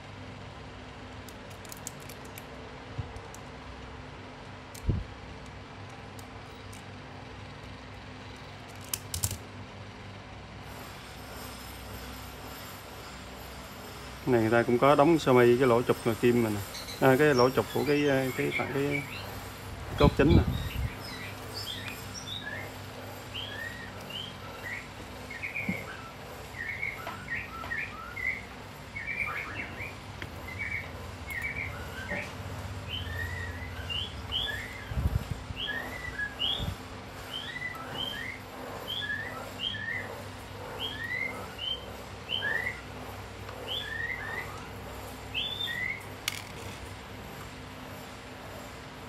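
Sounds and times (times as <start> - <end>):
small bird chirping: 16.6 - 40.2, 40.8 - 42.9, 43.6 - 46.1.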